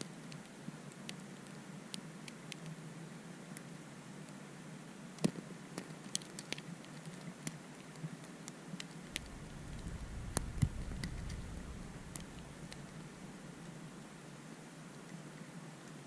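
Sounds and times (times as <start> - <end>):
ice grains ticking: 9.1 - 14.0
wind rumble on microphone: 9.1 - 14.0.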